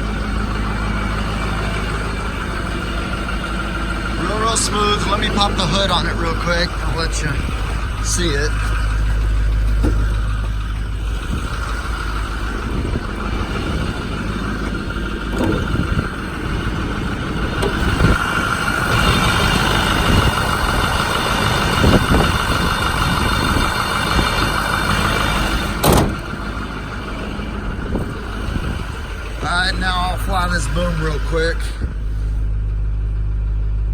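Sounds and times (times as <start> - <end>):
hood opening clack: 0.0 - 31.0
diesel engine idling: 0.0 - 33.9
short knocks: 8.5 - 10.7.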